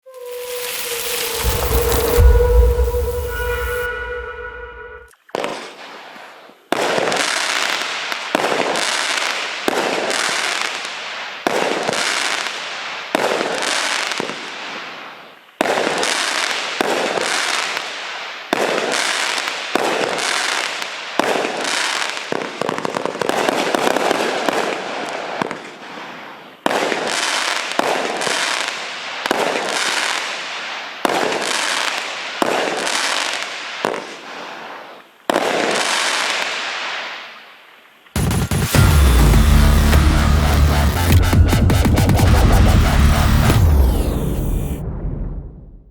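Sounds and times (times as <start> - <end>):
fireworks crackling: 0.0 - 4.1, 38.1 - 44.8
fireworks firing: 0.0 - 15.0, 38.1 - 45.9.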